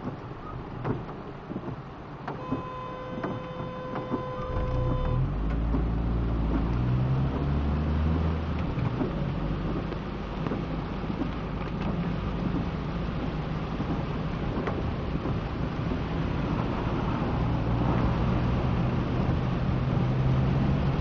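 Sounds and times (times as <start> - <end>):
rain hissing: 0.0 - 21.0
vehicle engine passing by: 4.7 - 9.8.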